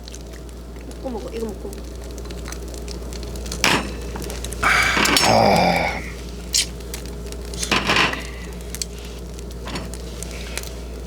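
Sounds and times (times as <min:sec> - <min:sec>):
tableware clicks and rustles: 0:03.4 - 0:05.3, 0:06.6 - 0:10.1.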